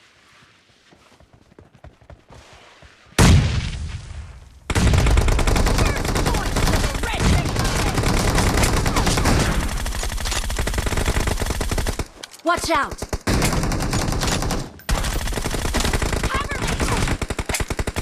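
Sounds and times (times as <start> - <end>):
loud gunshot blast: 3.2 - 4.2
rapid automatic gunfire: 4.7 - 12.1, 12.9 - 18.0.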